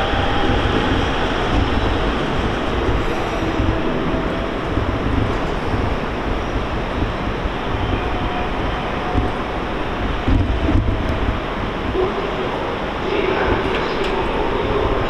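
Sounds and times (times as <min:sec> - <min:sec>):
electric train running equipment: 0:00.0 - 0:12.0
station ambience: 0:00.0 - 0:15.0.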